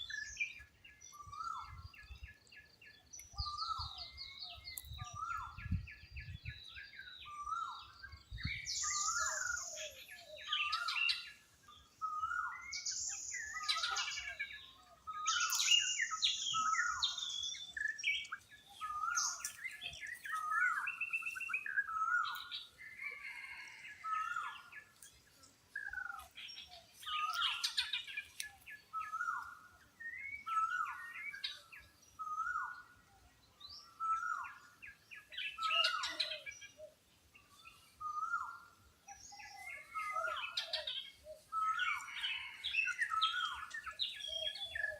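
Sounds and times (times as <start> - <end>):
birds calling: 0.0 - 44.9
high bird chirps and squeals: 12.0 - 14.4.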